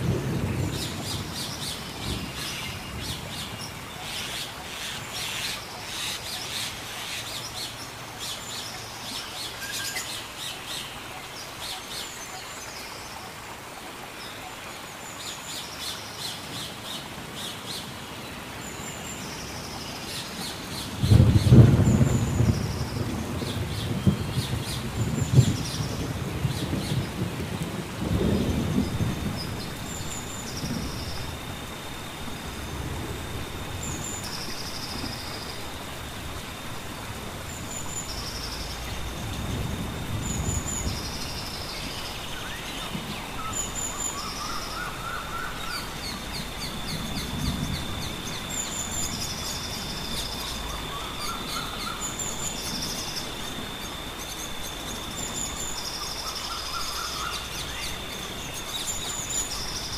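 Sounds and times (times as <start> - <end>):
lower arching bird calls: 33.4 - 59.9.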